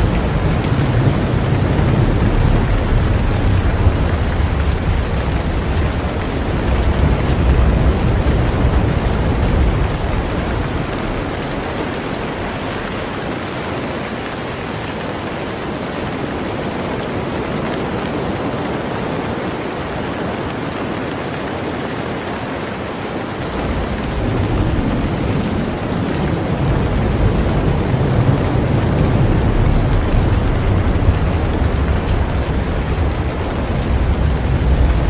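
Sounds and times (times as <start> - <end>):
deep low rumble: 0.0 - 12.7, 23.5 - 35.0
heavy rain on a boat: 0.0 - 35.0.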